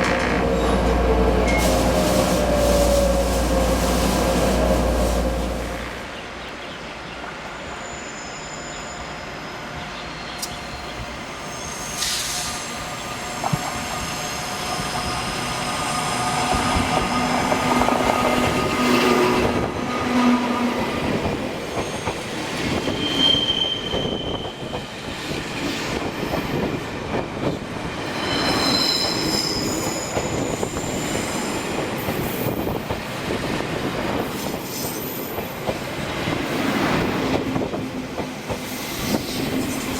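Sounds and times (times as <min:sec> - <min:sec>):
train rumbling on track: 0:00.0 - 0:39.9
high-pitched wheel squeals: 0:21.8 - 0:24.6, 0:28.1 - 0:31.6.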